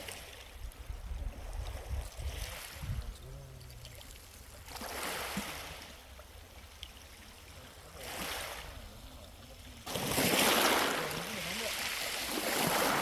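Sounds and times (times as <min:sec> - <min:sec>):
small waves washing on shore: 0:00.0 - 0:13.0.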